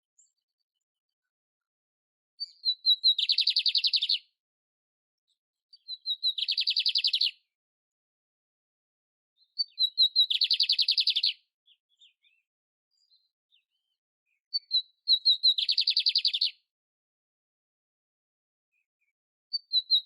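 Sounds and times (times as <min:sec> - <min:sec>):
canary singing trills: 0:02.4 - 0:04.3, 0:05.7 - 0:07.5, 0:09.4 - 0:16.6, 0:19.5 - 0:20.0.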